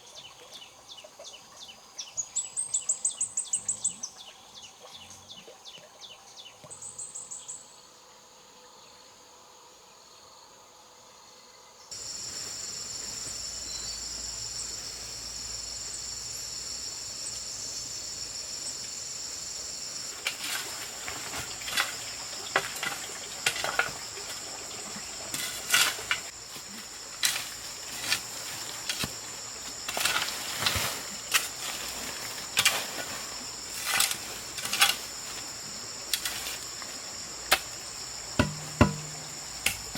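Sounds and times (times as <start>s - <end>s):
insect chorus: 0.0s - 39.9s
sharp knocks: 38.4s - 39.9s.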